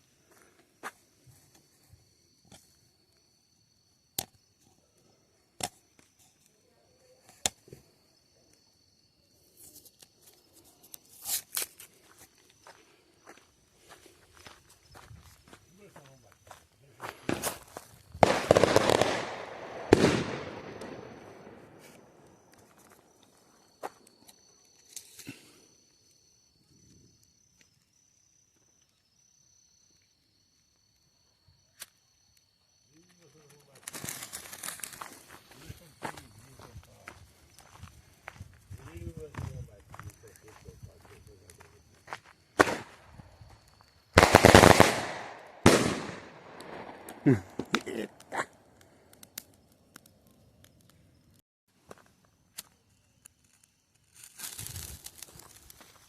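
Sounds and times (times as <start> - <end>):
crickets trilling: 0.0 - 56.0
sharp cracks and pops: 4.1 - 4.4, 5.6 - 6.5, 7.2 - 7.8, 9.7 - 12.8, 16.5 - 25.5, 31.7 - 32.0, 33.1 - 38.4, 39.4 - 56.0
sharp crack: 18.2 - 22.7, 42.6 - 43.0, 44.2 - 50.1.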